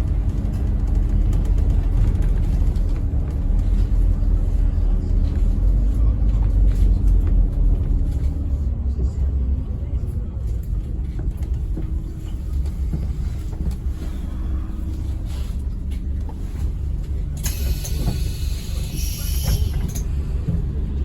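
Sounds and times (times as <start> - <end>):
bus engine and road rumble: 0.0 - 21.0
air hissing: 17.4 - 19.9.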